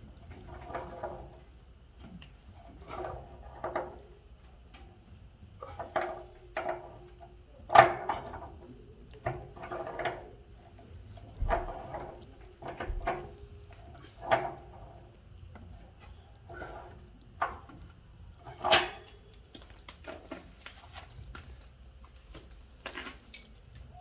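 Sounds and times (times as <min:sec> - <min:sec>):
tools knocking and scraping: 0:15.6 - 0:21.2.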